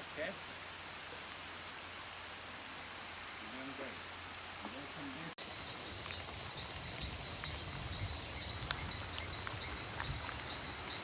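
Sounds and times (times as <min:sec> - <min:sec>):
even hiss: 0:00.0 - 0:05.4
small ticks: 0:05.6 - 0:11.0.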